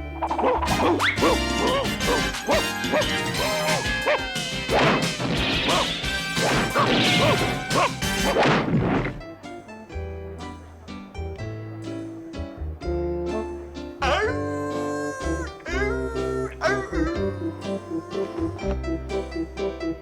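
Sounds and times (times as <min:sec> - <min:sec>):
background music: 0:00.0 - 0:20.0
dog yapping barks: 0:00.3 - 0:04.9, 0:05.7 - 0:08.4
loud crashes of smashing: 0:00.7 - 0:09.2.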